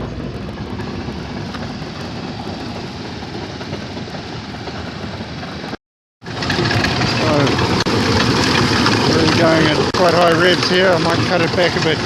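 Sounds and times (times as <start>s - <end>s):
car engine running at high revs: 6.3s - 12.0s.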